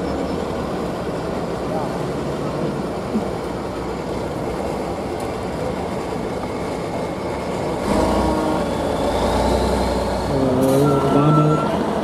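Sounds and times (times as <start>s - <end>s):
truck engine revving: 7.4s - 12.0s.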